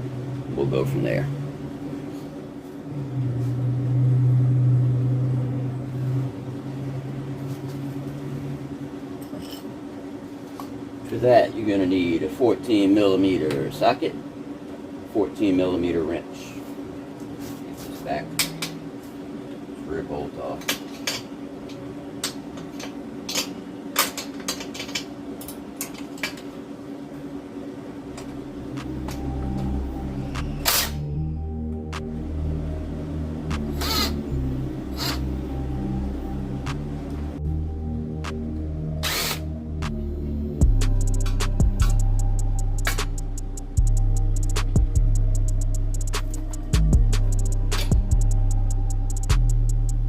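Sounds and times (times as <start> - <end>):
low mechanical hum: 0.0 - 50.0.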